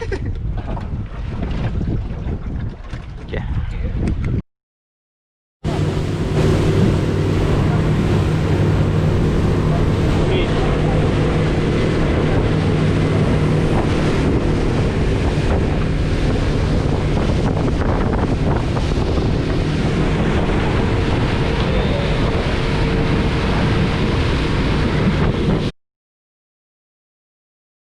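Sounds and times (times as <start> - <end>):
wind buffeting microphone: 0.0 - 4.4, 5.7 - 25.7
boat engine hum: 5.6 - 25.7.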